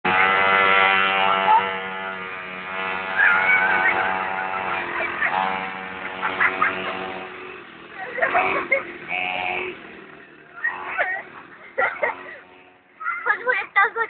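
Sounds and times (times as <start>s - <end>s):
mini bike engine running: 0.0s - 14.0s.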